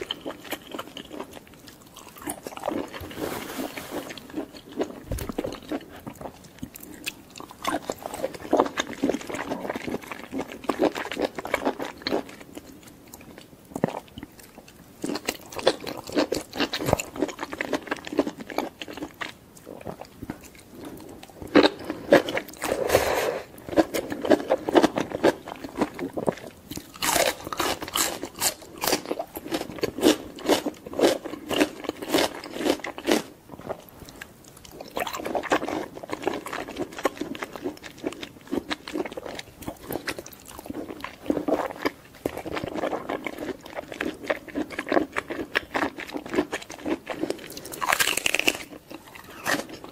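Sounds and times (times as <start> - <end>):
wet chewing: 0.0 - 22.8, 23.6 - 49.9
crunchy bites: 23.8 - 33.3, 36.4 - 49.9.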